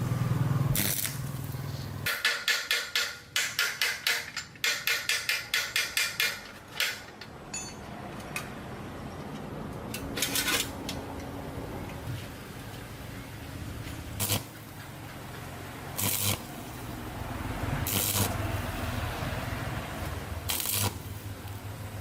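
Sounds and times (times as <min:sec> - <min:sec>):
hammer striking metal: 0:02.1 - 0:07.9.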